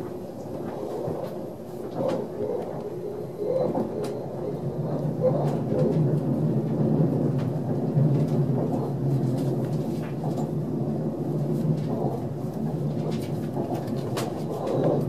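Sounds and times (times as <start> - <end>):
train rumbling on track: 0.0 - 15.0.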